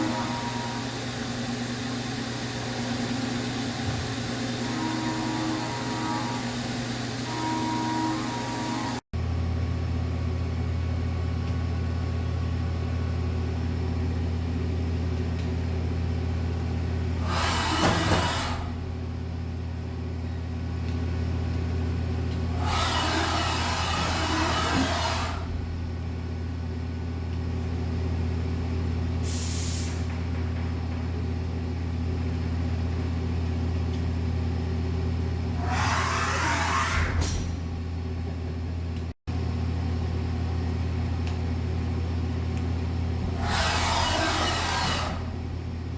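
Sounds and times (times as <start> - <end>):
machine running with steady hum: 0.0 - 29.4, 30.0 - 45.9.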